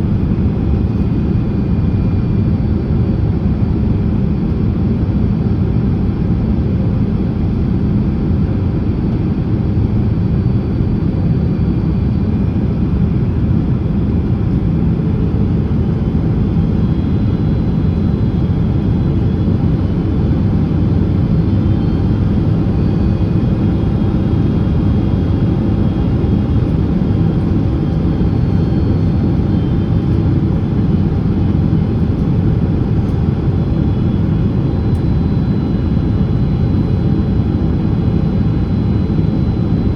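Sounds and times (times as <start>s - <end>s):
airplane cabin rumble: 8.6s - 39.9s.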